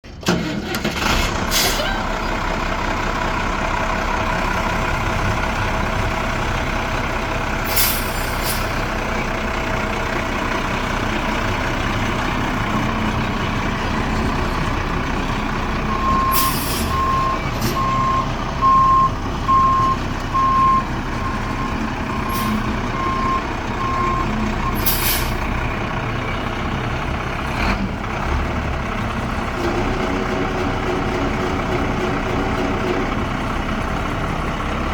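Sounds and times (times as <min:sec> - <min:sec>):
diesel truck engine running: 0:00.0 - 0:34.9
backup alarm beeping: 0:15.8 - 0:24.8.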